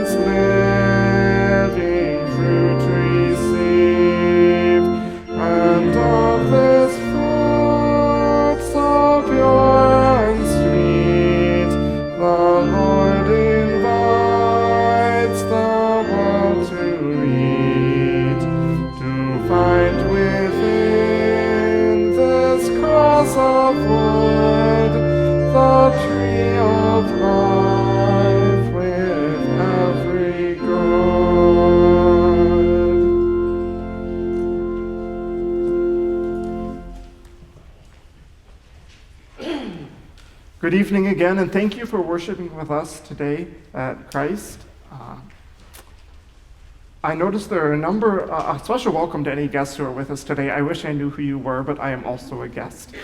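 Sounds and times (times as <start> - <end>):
congregation singing a hymn: 0.0 - 37.2
organ chords: 0.0 - 37.9.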